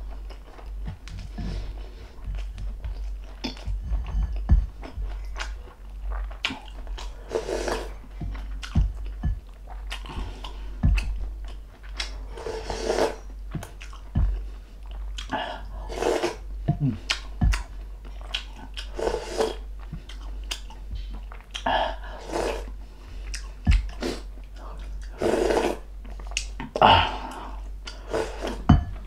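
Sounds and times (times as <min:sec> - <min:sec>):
person chewing and biting: 0:00.1 - 0:12.3, 0:13.2 - 0:15.4, 0:16.8 - 0:21.7.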